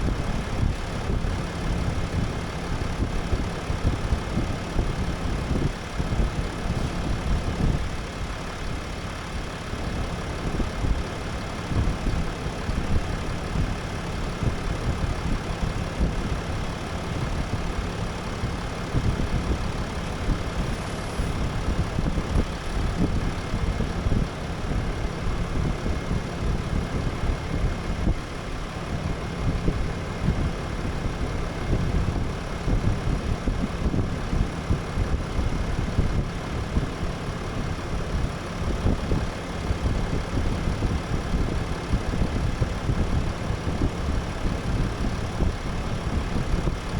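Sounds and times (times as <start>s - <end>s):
diesel engine idling: 0.0s - 46.9s.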